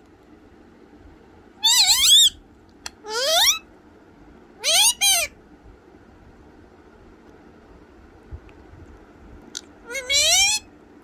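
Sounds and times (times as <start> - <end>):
parrot calling: 1.6 - 3.7, 4.6 - 5.4, 9.6 - 10.7.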